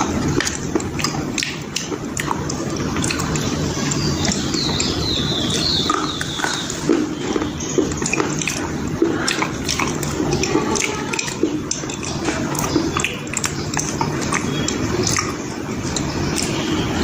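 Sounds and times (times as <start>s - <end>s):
chewing and crunching: 0.0s - 17.0s
wet noisy background: 0.0s - 17.0s.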